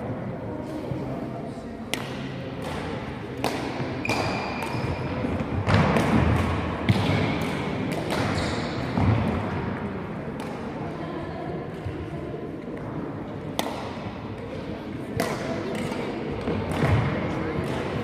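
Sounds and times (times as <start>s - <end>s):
rackets striking shuttlecock: 1.8s - 10.8s, 13.5s - 18.0s
shoes squeaking on court floor: 8.3s - 9.0s.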